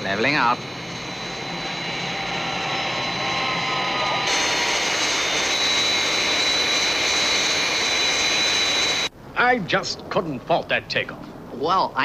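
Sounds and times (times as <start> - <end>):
jet airliner engines rushing: 0.0 - 9.2.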